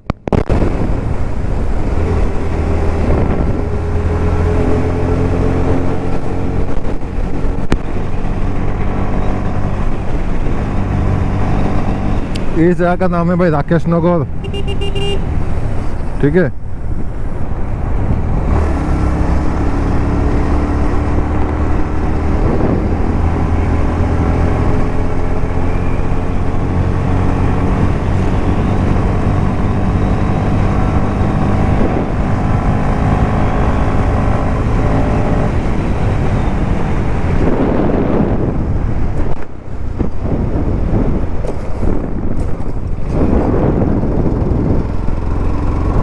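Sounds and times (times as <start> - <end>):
wind noise on microphone: 0.0 - 13.2, 14.2 - 46.0
motorcycle engine running: 14.3 - 16.2, 17.1 - 46.0.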